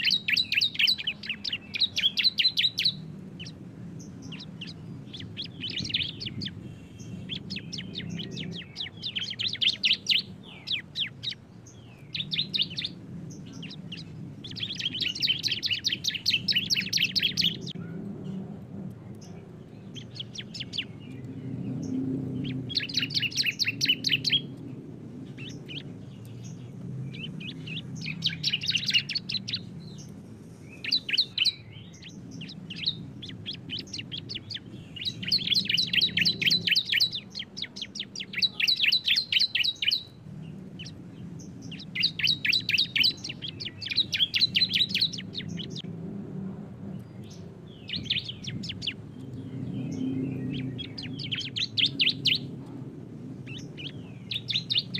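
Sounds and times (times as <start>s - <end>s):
bird trilling: 0.0s - 3.6s, 12.0s - 17.8s, 22.4s - 24.5s, 27.2s - 29.7s, 30.8s - 40.1s, 41.6s - 45.8s, 53.4s - 54.9s.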